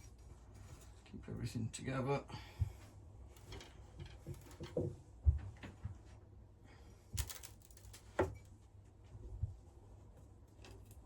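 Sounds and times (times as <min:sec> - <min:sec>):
small parts clicking and knocking: 0:07.2 - 0:08.5.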